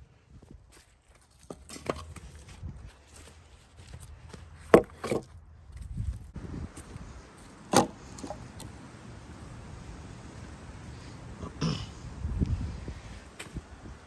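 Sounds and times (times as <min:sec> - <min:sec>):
hatchet chopping firewood: 0:04.7 - 0:05.3, 0:07.7 - 0:08.4.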